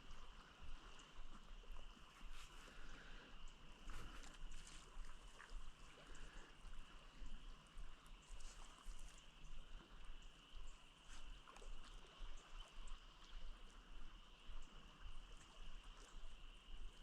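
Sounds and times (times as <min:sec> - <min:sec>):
flowing river water: 0:00.0 - 0:17.0.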